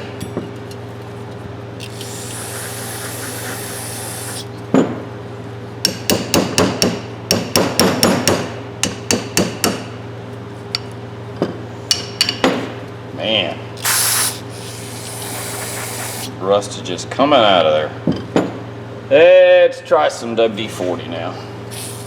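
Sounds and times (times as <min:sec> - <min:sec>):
aerosol spray hissing: 0:01.8 - 0:04.5, 0:13.8 - 0:16.3, 0:21.7 - 0:22.0.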